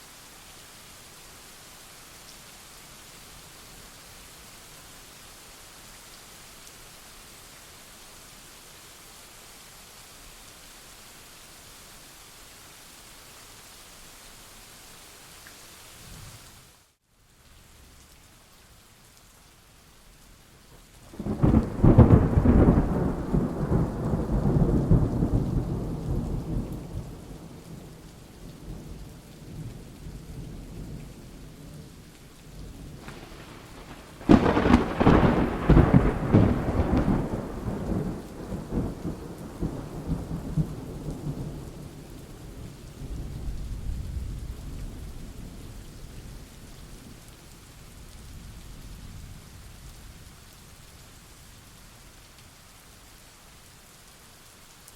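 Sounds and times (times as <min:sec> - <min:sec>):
rain: 0:00.0 - 0:54.9
thunder clap rumbling: 0:21.1 - 0:27.7, 0:32.8 - 0:41.6.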